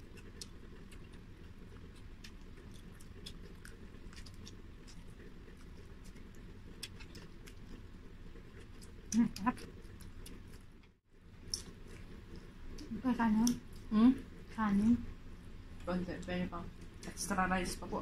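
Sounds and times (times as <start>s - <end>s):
mouths chewing: 0.0s - 13.9s.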